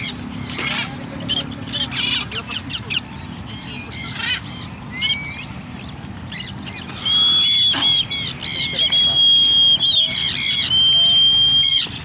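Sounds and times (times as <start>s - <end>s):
parrots chirping: 0.0s - 12.0s
steady high whistle: 8.8s - 11.8s.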